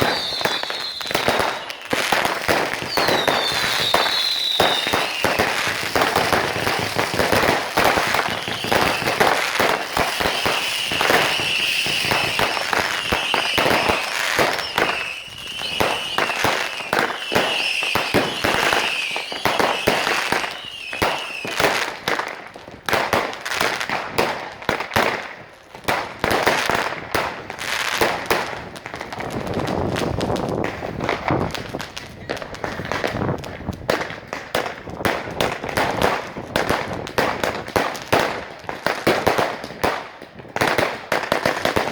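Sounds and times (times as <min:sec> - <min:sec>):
firework whistles: 0:00.0 - 0:21.9
firecrackers banging and crackling: 0:00.0 - 0:41.9.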